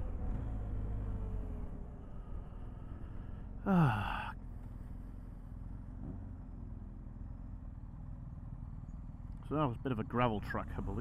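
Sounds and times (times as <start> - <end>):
motorcycle engine rumble: 0.0 - 11.0
sigh-like voice sound: 3.6 - 4.4.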